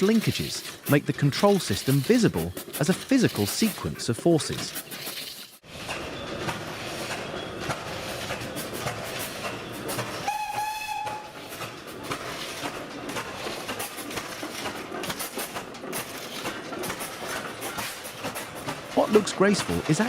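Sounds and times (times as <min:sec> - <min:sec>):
steam engine clicking and clanking: 0:00.0 - 0:20.0
short steam whistle blast: 0:10.2 - 0:11.3.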